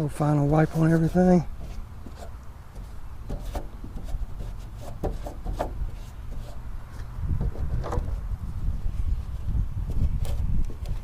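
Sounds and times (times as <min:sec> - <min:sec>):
rag wiping plastic housing: 0:00.1 - 0:08.2
short knocks and scrapes: 0:00.2 - 0:08.3.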